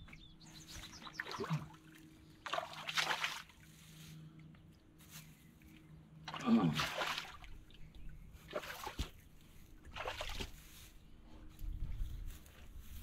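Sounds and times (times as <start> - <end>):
muddy water splashing: 0.6 - 4.1, 6.2 - 10.9.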